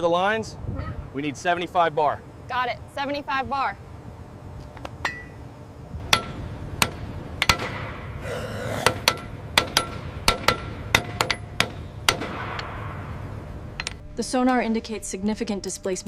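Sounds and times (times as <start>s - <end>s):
hand tool tapping metal: 8.8s - 12.7s.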